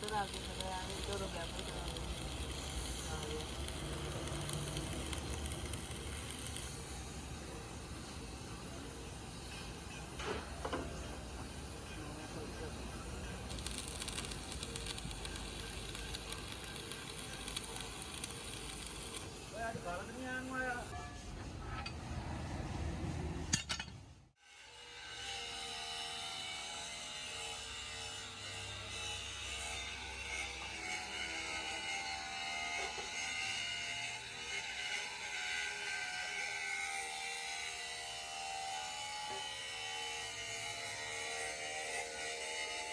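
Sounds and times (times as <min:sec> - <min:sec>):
power tool motor whining: 0:00.0 - 0:07.2
arc welding crackle: 0:00.0 - 0:20.9, 0:25.5 - 0:42.9
low workshop rumble: 0:00.0 - 0:24.3.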